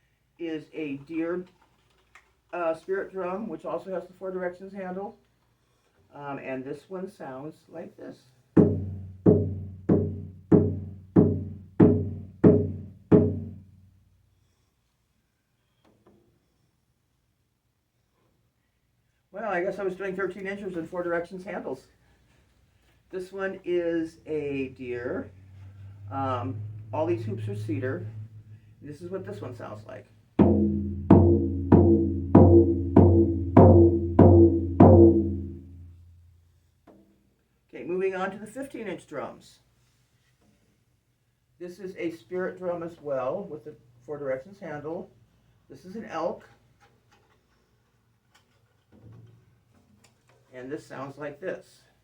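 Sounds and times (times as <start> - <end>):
frame drum strokes ringing: 8.6 - 13.8, 24.3 - 36.1.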